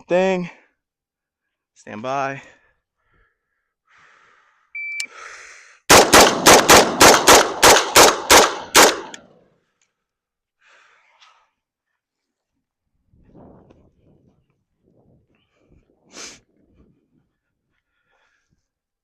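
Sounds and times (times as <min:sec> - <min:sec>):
shot timer beep: 0:04.8 - 0:05.1
rifle firing rapid shots: 0:05.9 - 0:09.2.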